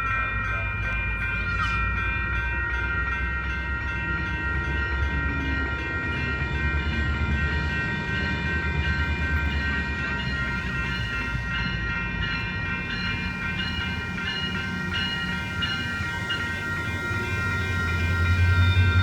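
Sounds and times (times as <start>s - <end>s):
diesel train rumbling by: 0.0s - 19.0s
high ringing tones: 0.0s - 19.0s.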